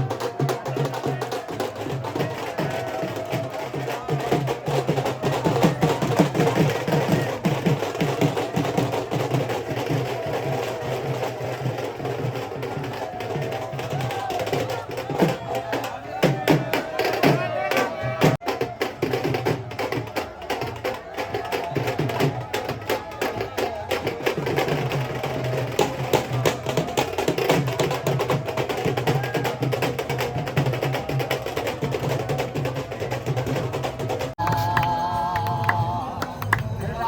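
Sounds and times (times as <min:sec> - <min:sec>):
drums and clacking percussion: 0:00.0 - 0:37.0
voices over music: 0:13.1 - 0:18.8, 0:31.8 - 0:37.0.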